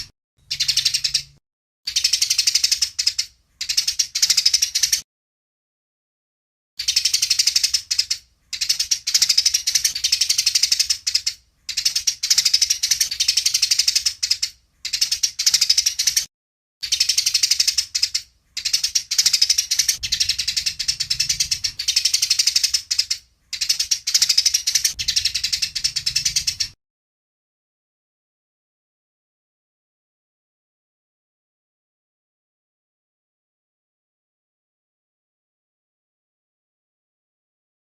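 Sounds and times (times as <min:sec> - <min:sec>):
sparrows chattering chirps: 0:00.0 - 0:05.0, 0:06.8 - 0:26.8.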